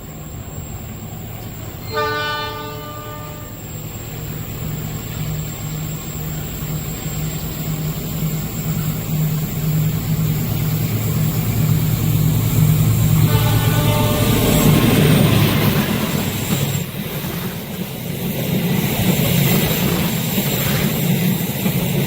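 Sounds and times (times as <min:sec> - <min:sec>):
diesel locomotive engine humming: 0:00.0 - 0:22.0.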